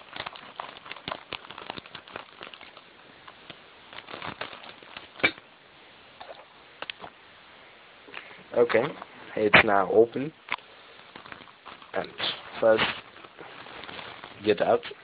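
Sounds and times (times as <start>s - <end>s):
scissors cutting package: 0.0s - 5.3s
packaging crinkling and clicks: 0.0s - 5.4s, 10.4s - 15.0s.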